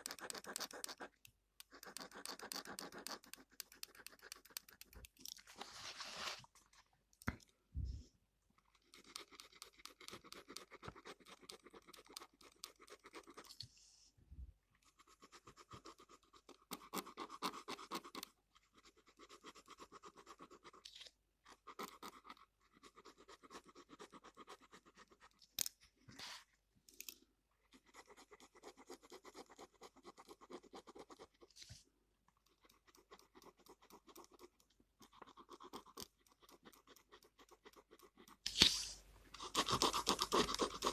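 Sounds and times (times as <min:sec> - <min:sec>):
pen scribbling on paper: 0:00.0 - 0:05.1, 0:08.8 - 0:13.6, 0:14.9 - 0:20.8, 0:21.5 - 0:25.4, 0:27.8 - 0:31.5, 0:32.5 - 0:40.9.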